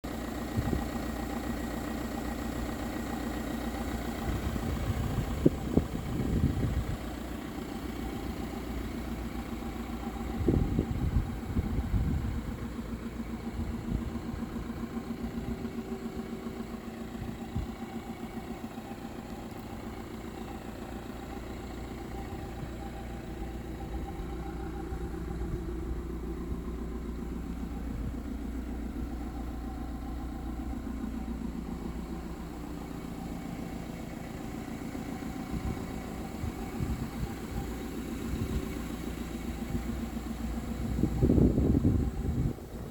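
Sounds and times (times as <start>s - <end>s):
diesel engine idling: 0.0s - 42.9s.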